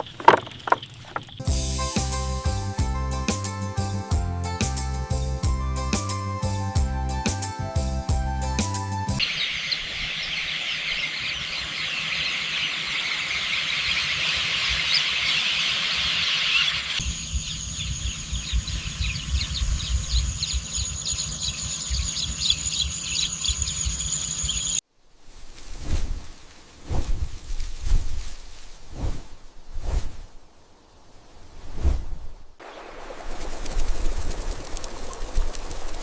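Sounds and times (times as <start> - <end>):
birds chirping: 0.0 - 1.6, 9.2 - 24.8.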